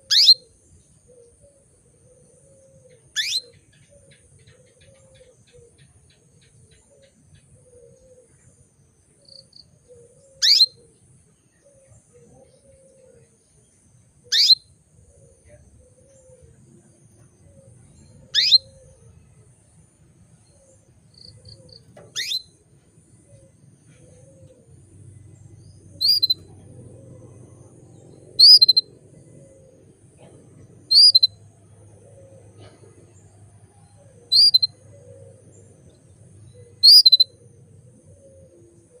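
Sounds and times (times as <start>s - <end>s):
faint low hum: 0.0s - 39.0s
canary chirping and trilling: 3.2s - 3.4s, 14.3s - 14.6s, 18.3s - 18.7s, 21.9s - 22.4s, 26.0s - 26.8s, 28.3s - 29.0s, 30.8s - 31.4s, 34.3s - 34.8s.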